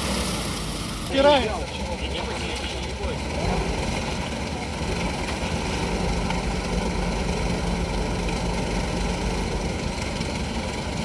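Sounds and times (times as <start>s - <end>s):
vehicle engine running steadily: 0.0s - 11.0s.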